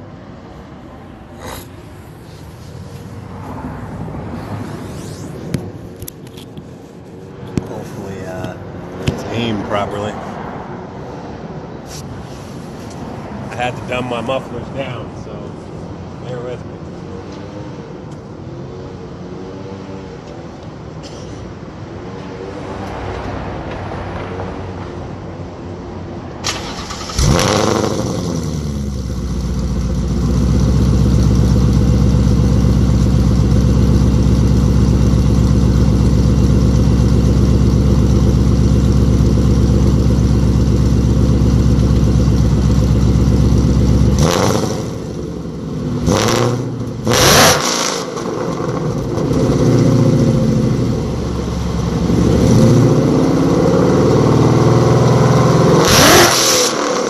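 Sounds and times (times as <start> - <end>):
car engine idling: 26.5 - 47.2, 48.1 - 55.5
car engine revving: 26.5 - 57.0.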